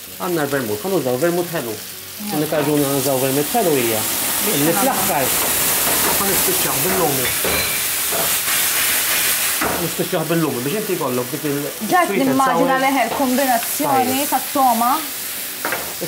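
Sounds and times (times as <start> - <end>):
food sizzling in pans: 0.0 - 16.0
man and woman talking: 0.3 - 7.4, 9.8 - 14.9.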